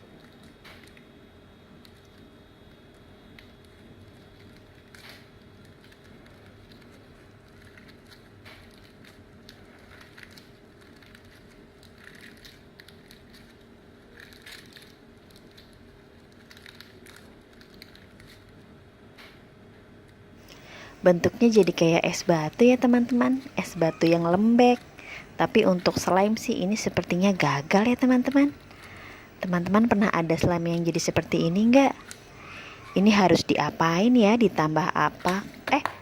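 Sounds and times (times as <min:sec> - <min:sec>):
slime crackling and squishing: 0:01.8 - 0:18.6.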